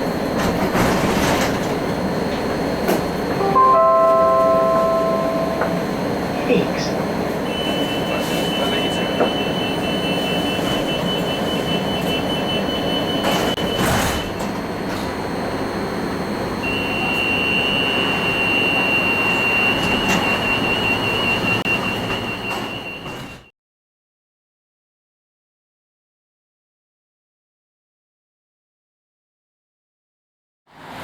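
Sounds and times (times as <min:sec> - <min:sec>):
tram rumbling: 0:00.0 - 0:23.5.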